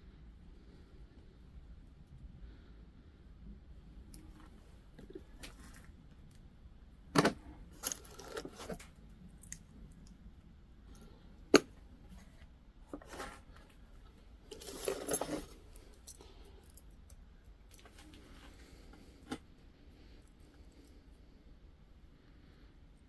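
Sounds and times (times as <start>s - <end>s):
metal jewelry clinking: 7.8s - 8.8s, 14.5s - 16.9s.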